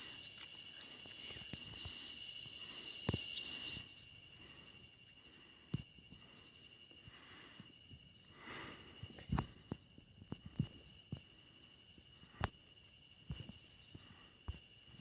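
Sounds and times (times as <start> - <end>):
high insect-like trill: 0.0 - 6.9.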